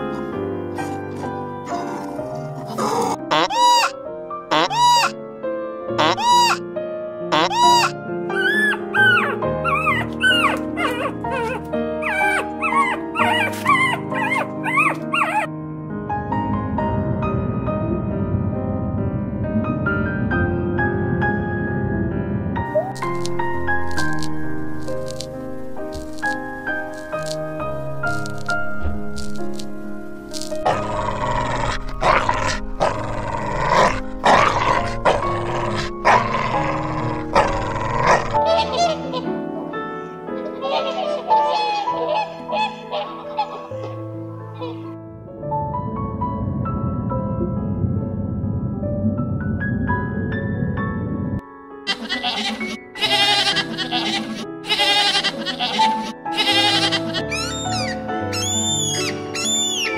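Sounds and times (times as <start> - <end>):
background music: 0.0 - 59.9
puppies whimpering and yipping: 3.3 - 5.2, 6.0 - 6.6, 7.4 - 15.5, 51.9 - 59.9
dog barking: 7.4 - 15.5.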